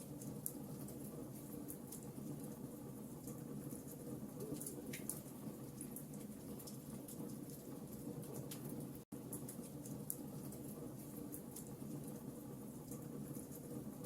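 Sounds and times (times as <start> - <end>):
low rumble of burning: 0.0 - 14.0
fire pops and snaps: 3.2 - 12.2.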